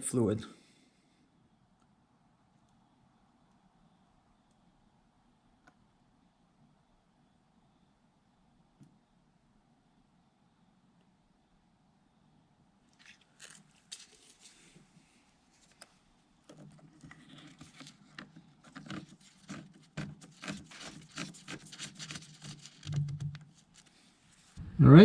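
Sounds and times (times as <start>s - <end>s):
clicks scrapes and knocks: 16.5s - 23.9s.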